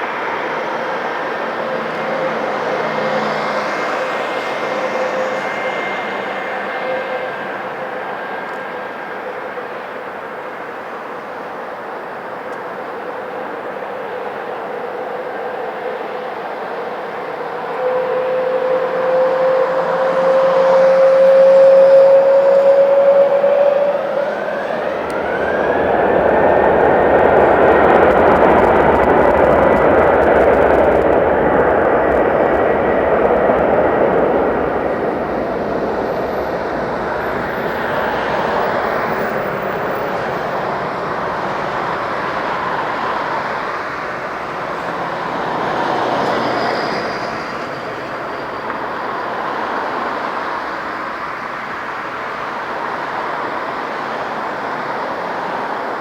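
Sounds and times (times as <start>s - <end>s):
jet engine whine: 0.0s - 56.0s
jet engines running: 0.0s - 56.0s.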